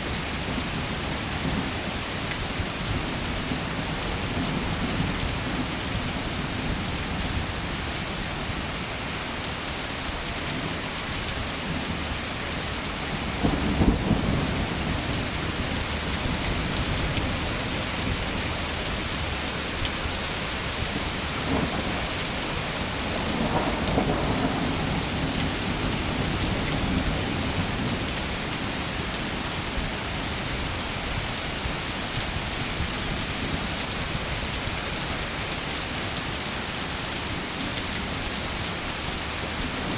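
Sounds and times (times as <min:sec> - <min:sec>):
heavy rain falling: 0:00.0 - 0:39.9
thunder rolling: 0:13.2 - 0:19.5.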